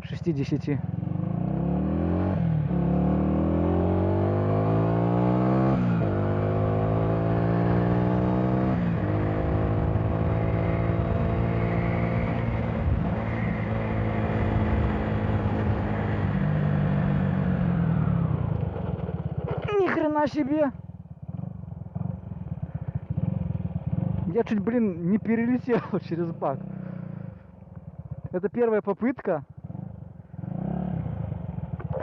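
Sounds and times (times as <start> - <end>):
motorcycle engine accelerating: 0.0 - 28.6, 29.4 - 32.0.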